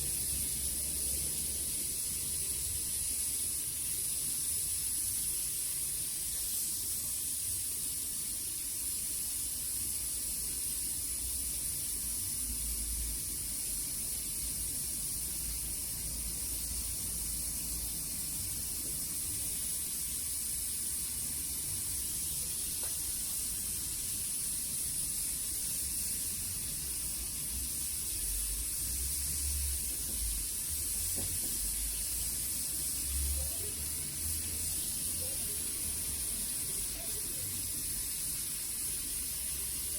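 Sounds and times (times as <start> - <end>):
torch flame hissing: 0.0 - 39.9.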